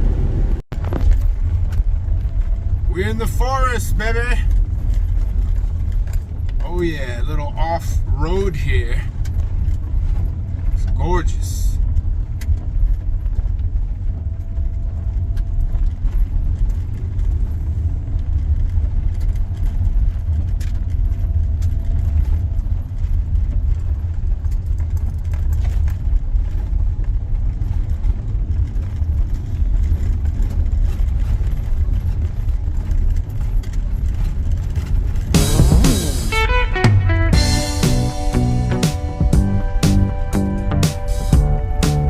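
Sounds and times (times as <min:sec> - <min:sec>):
van engine and tyres rumbling: 0:00.0 - 0:42.0
small clicks and rattles: 0:11.8 - 0:35.4.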